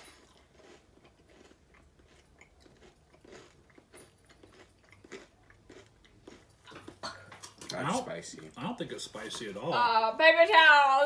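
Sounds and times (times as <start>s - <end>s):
faint chewing: 0.0s - 8.6s.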